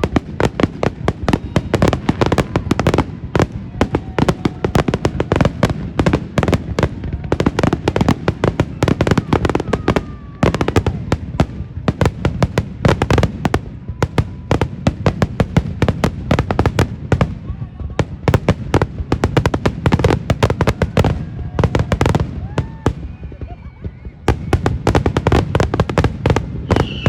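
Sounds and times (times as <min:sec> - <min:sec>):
fireworks cracking and banging: 0:00.0 - 0:27.0
faint whistling tones: 0:01.2 - 0:02.6, 0:22.9 - 0:24.9, 0:26.6 - 0:27.0.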